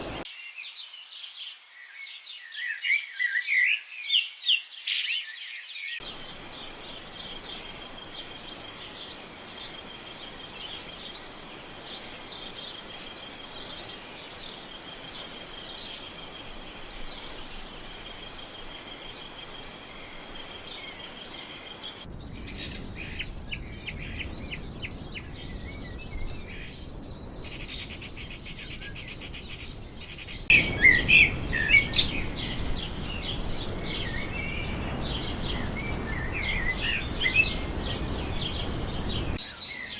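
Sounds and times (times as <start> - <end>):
busy birdsong: 0.0 - 39.9
bird chirps: 1.8 - 39.9
insect chorus with shrill pulses: 6.0 - 22.9.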